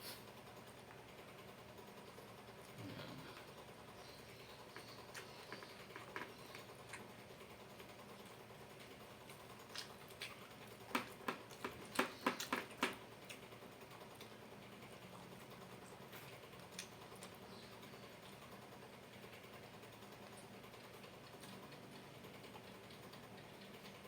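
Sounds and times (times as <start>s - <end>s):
crunching fried chicken: 2.0s - 19.2s.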